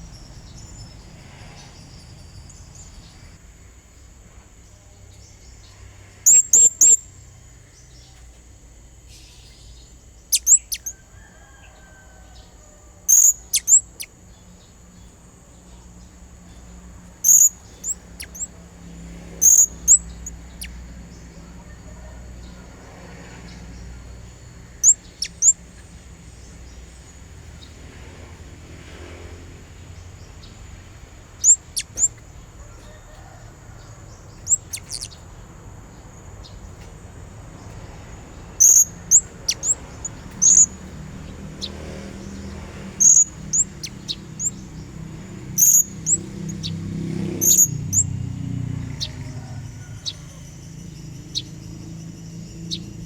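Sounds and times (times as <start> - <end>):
parrot high-pitched chirps: 6.2 - 7.0, 10.3 - 11.0, 13.1 - 14.2, 17.2 - 18.5, 19.4 - 20.8, 24.8 - 25.6, 31.4 - 32.2, 34.4 - 35.2, 38.6 - 40.8, 43.0 - 44.6, 45.5 - 46.7, 47.4 - 48.1.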